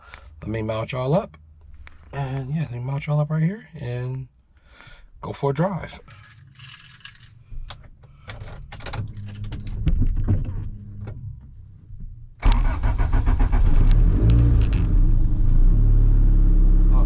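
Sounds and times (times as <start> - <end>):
clicks and knocks of mounting: 7.6 - 11.2
car engine starting and idling: 7.7 - 17.0.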